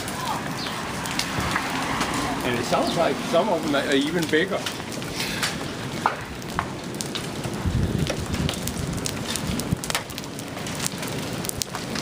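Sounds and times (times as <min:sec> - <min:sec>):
heavy rain hissing: 0:00.0 - 0:09.8
hailstones knocking on hard surfaces: 0:00.0 - 0:12.0.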